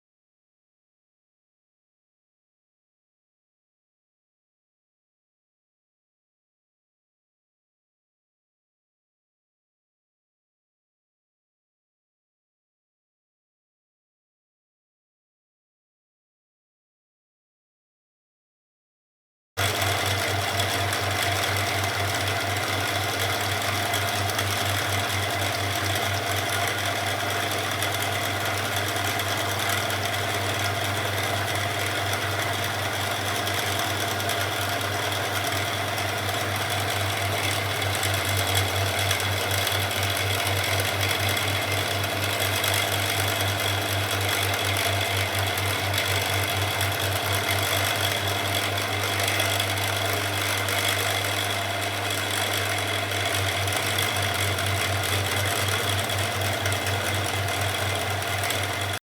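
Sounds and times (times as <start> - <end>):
small machine pulsing: 19.6 - 59.0.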